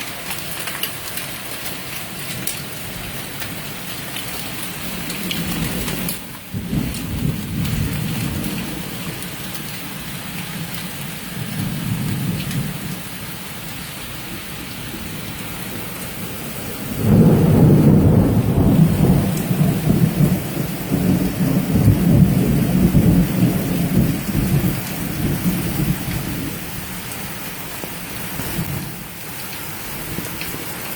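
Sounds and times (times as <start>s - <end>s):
hail and rain falling: 0.0s - 30.9s
thunder rumbling: 4.6s - 9.4s, 14.1s - 27.4s, 28.1s - 30.7s.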